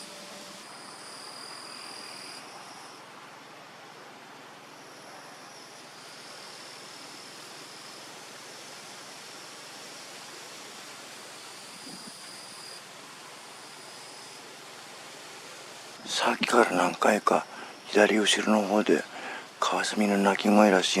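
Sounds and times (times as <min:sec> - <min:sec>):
insects trilling: 0:00.0 - 0:21.0
running water rushing: 0:05.6 - 0:21.0.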